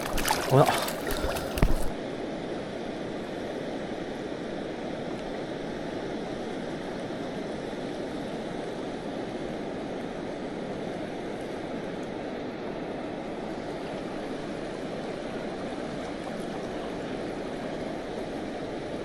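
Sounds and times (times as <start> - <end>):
river water flowing over rocks: 0.0 - 2.0.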